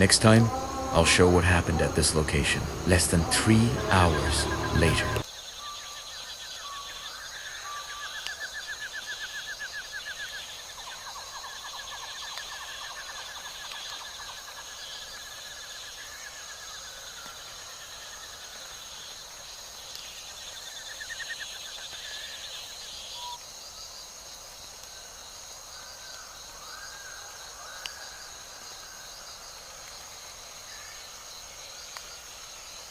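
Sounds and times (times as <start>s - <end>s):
pulsed insect chirping: 0.0s - 14.2s
high insect drone: 0.0s - 32.9s.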